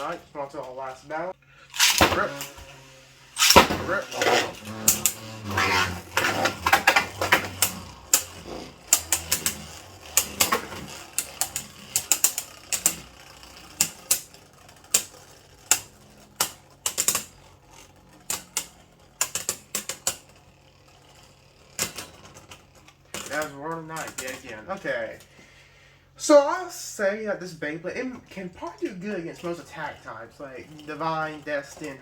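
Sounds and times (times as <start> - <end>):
spinning tops clacking together: 1.7 - 25.2.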